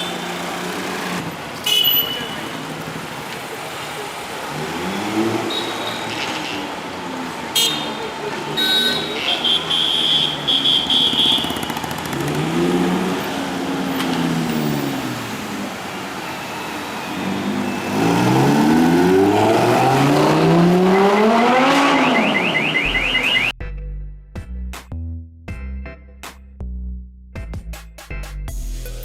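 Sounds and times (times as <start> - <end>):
sports car engine revving: 11.7 - 15.5, 17.3 - 23.5
electronic music: 20.4 - 24.0.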